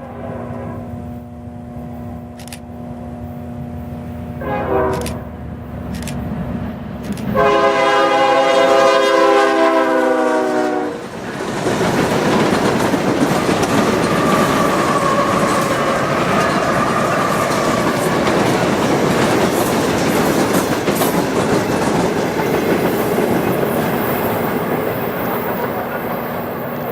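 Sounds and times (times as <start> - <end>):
locomotive horn blast: 0.0 - 1.2, 4.3 - 5.4, 7.3 - 11.0
locomotive engine and wheels rumbling: 0.0 - 26.9.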